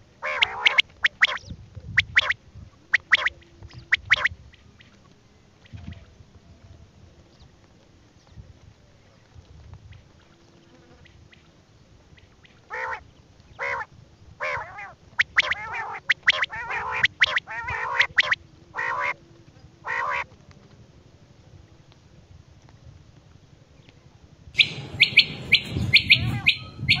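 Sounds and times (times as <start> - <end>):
game bird harsh calls: 0.2 - 1.4, 12.7 - 13.0, 13.6 - 19.2, 19.8 - 20.2, 24.6 - 27.0.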